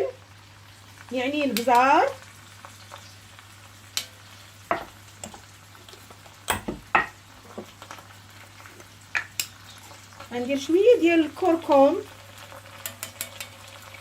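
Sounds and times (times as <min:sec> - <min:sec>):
vegetables sizzling in oil: 0:00.0 - 0:14.0
spoon stirring and knocking pot: 0:04.7 - 0:07.8.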